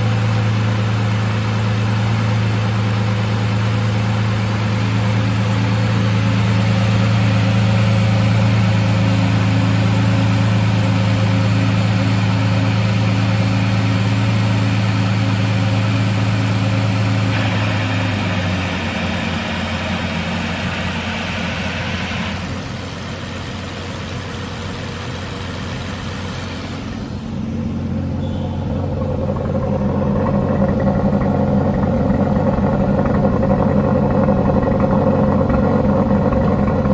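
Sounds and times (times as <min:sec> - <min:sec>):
car engine idling: 0:00.0 - 0:36.9.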